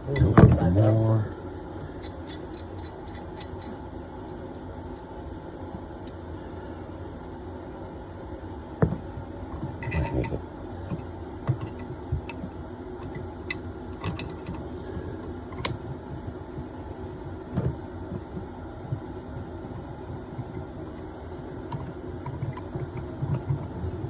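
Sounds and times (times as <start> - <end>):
steady low hum: 0.0 - 24.0
metal tools clicking on copper pipe: 1.6 - 3.8, 13.0 - 14.6.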